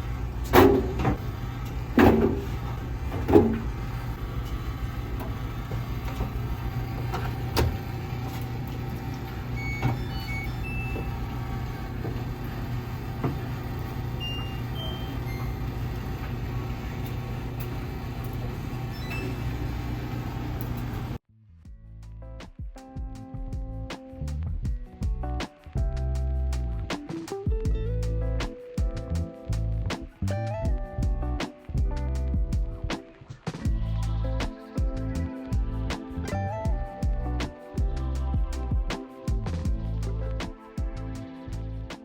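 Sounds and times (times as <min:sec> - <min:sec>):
washing machine humming: 0:00.0 - 0:21.2
short electronic beeps: 0:14.2 - 0:15.6.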